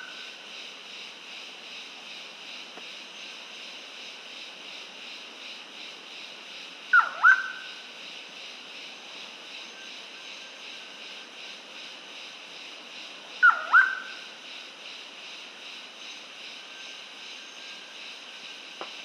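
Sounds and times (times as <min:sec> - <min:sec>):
bird whistled call: 0:07.0 - 0:07.6, 0:13.4 - 0:14.2.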